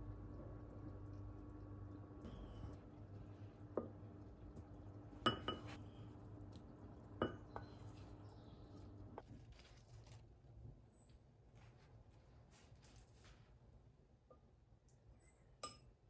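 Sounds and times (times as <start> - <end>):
faint steady hum: 0.0 - 11.2
dishes and utensils clinking: 5.3 - 5.8.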